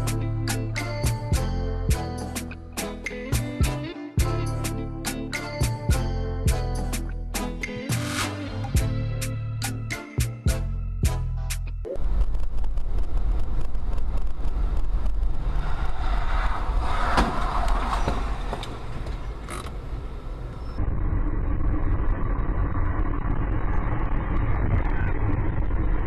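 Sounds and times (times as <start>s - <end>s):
vehicle engine and road rumble: 11.5s - 26.0s.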